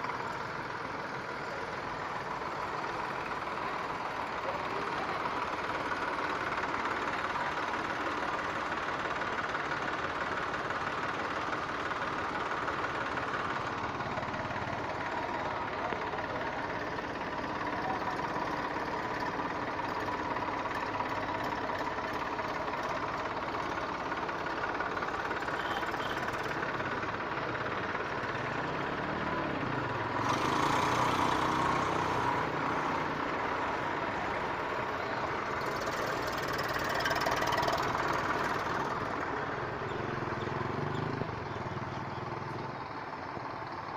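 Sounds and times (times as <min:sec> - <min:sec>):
diesel tractor engine running: 0:00.0 - 0:43.9.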